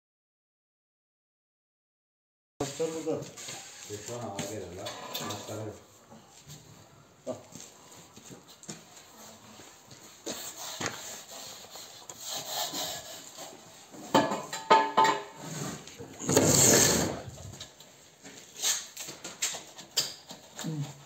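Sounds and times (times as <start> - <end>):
tool scraping wet mortar: 10.3 - 14.0, 15.3 - 17.7.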